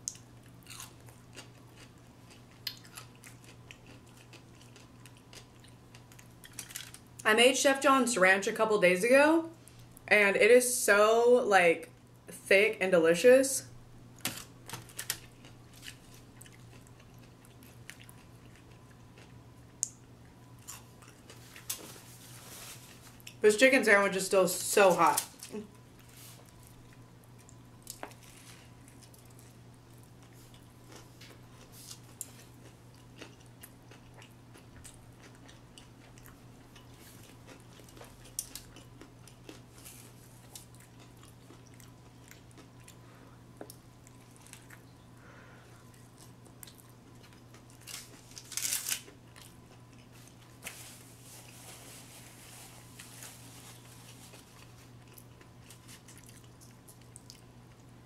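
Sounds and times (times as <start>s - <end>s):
person chewing crispy sandwich: 0.0s - 7.2s, 14.3s - 23.4s, 25.4s - 58.0s
crunchy bite: 0.1s - 5.4s.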